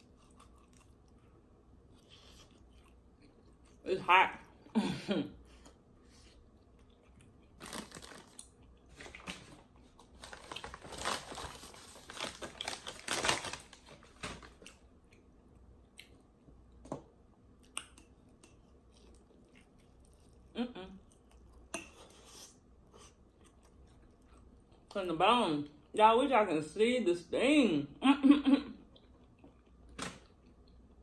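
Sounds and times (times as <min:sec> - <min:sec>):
crunchy chewing: 0:00.0 - 0:03.8, 0:05.6 - 0:09.2, 0:17.6 - 0:24.8.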